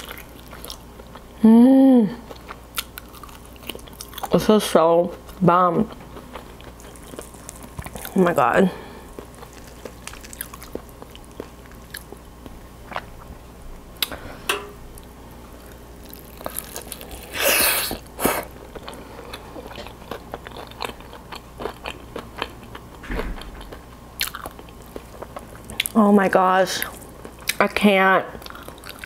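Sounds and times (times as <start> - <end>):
chewing with small clicks: 9.1 - 12.3.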